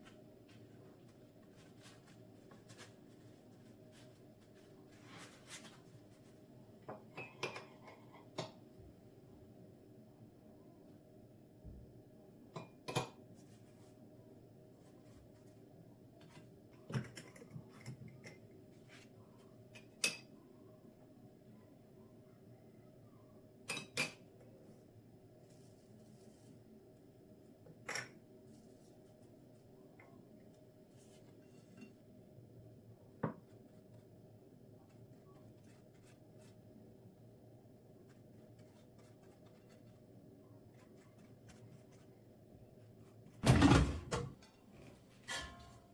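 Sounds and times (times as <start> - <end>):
dishes and utensils clinking: 6.9 - 8.6, 23.7 - 24.4, 27.8 - 28.2, 45.2 - 45.9.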